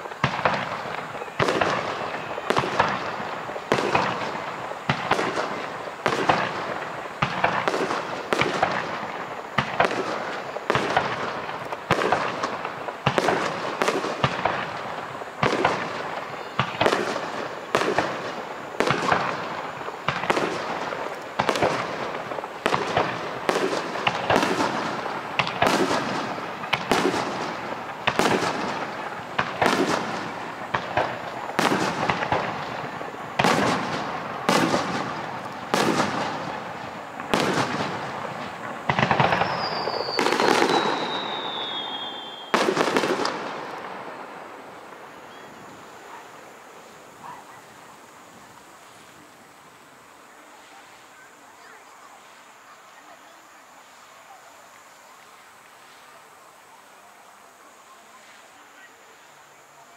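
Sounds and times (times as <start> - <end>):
fireworks bursting: 0.0 - 59.9
falling whistle: 39.4 - 42.6.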